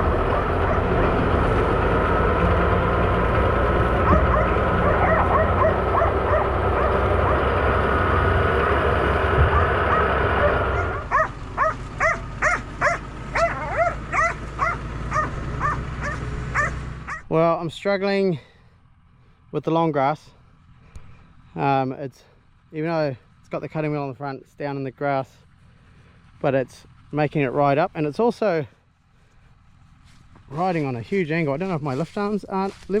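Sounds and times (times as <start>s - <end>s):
tractor engine running: 0.0s - 33.0s
dog whining: 4.0s - 7.4s, 9.5s - 17.2s
dog yipping and barking: 4.0s - 7.4s, 9.5s - 17.2s.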